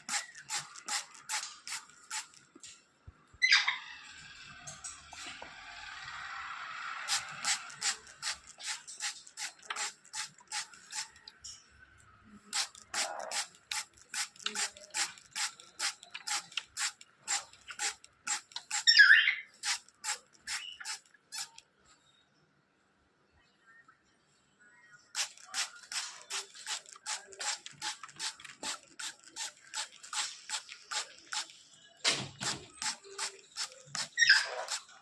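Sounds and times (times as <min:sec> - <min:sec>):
sharp clicks: 0:07.1 - 0:11.4, 0:12.6 - 0:19.0, 0:19.6 - 0:21.6.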